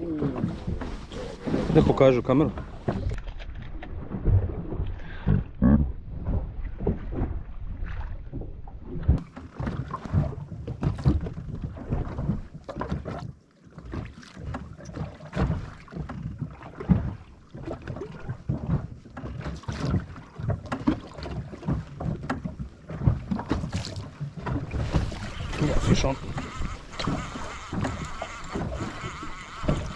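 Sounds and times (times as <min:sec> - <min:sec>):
water slapping against boat hull: 0:00.0 - 0:29.9
wind buffeting microphone: 0:24.5 - 0:29.9.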